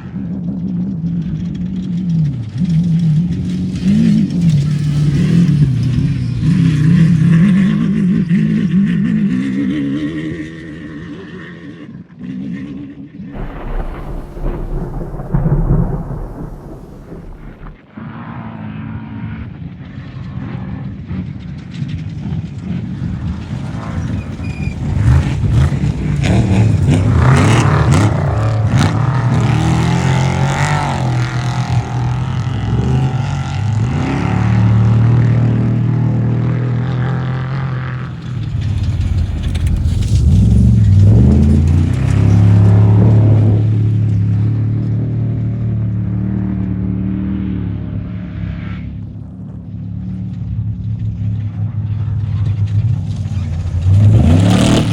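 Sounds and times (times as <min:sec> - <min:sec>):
race vehicle engines revving: 0:52.9 - 0:54.9.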